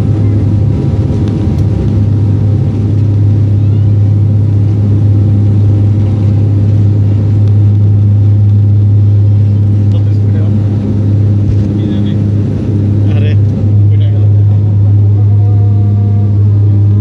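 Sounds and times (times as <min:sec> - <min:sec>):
aircraft engine drone: 0:00.0 - 0:17.0
faint steady tones: 0:01.9 - 0:17.0.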